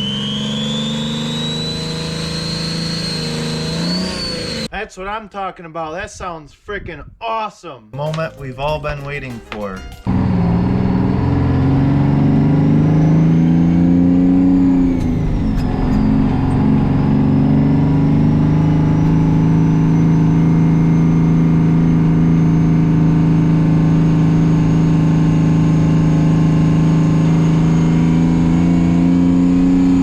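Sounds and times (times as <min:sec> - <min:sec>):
high turbo whistle: 0:00.0 - 0:04.7, 0:10.1 - 0:21.8
diesel engine running: 0:10.1 - 0:30.0.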